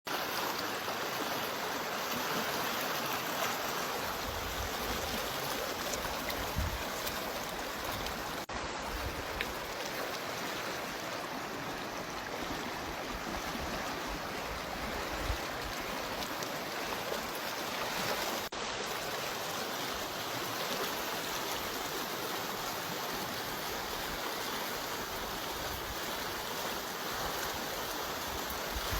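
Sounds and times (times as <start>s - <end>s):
rushing water: 0.1s - 28.9s.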